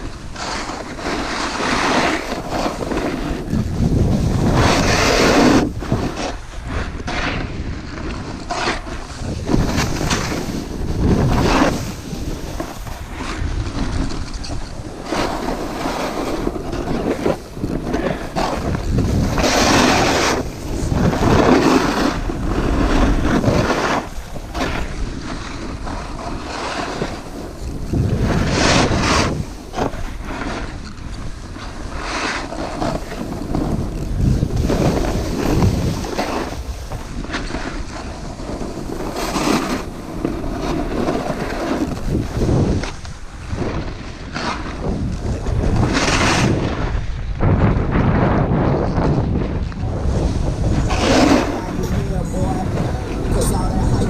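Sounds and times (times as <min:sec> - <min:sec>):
snowboard scraping through snow: 0:00.0 - 0:54.0
wind buffeting microphone: 0:00.0 - 0:54.0.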